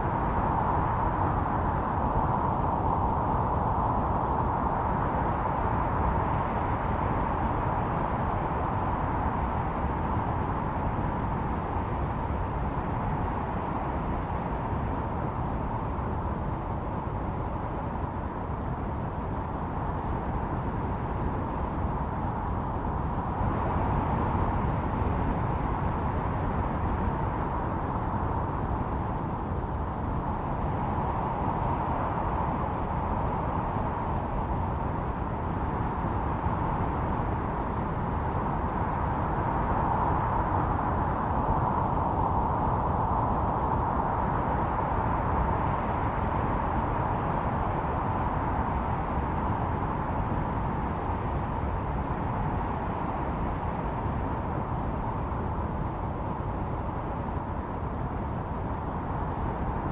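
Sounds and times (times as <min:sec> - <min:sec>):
howling wind: 0:00.0 - 0:59.9.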